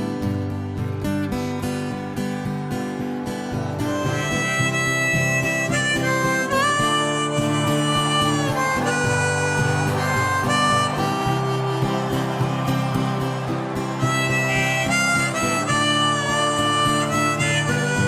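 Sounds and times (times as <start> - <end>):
strummed acoustic guitar: 0.0 - 18.0
harmonica melody: 1.0 - 18.0.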